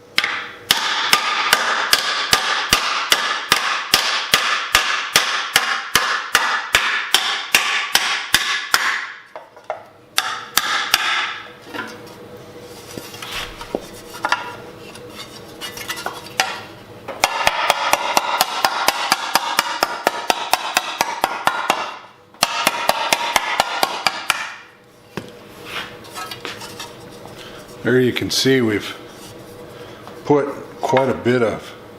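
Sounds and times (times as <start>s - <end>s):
mallet striking sheet metal: 0.2s - 9.2s, 17.2s - 24.7s.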